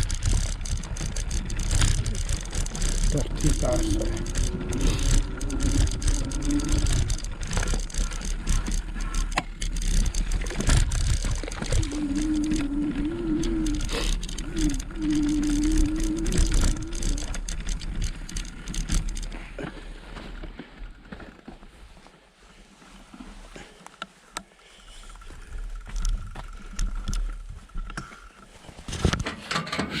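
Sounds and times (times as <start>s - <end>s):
knocks and rattles: 0.0s - 19.4s
wavering hum: 0.0s - 19.6s
bike tyre noise: 0.0s - 29.2s.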